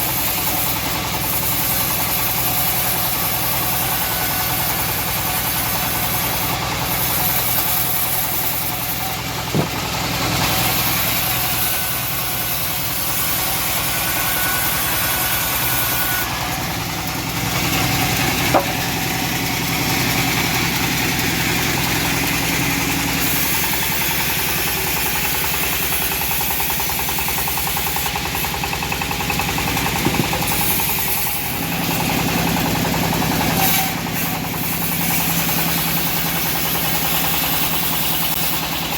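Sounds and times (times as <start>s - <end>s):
bandsaw sawmill cutting log: 0.0s - 38.9s
short sharp knocks: 9.5s - 9.8s, 18.5s - 18.9s, 30.0s - 30.7s.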